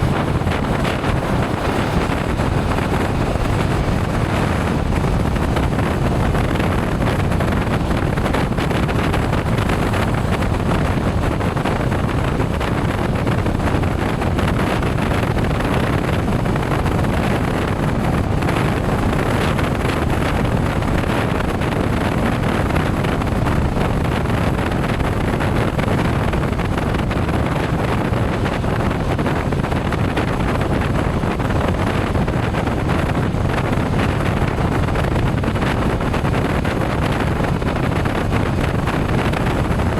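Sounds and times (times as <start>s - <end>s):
motorcycle engine: 0.0s - 14.2s
road noise: 0.0s - 39.9s
wind rushing over microphone: 0.0s - 39.9s.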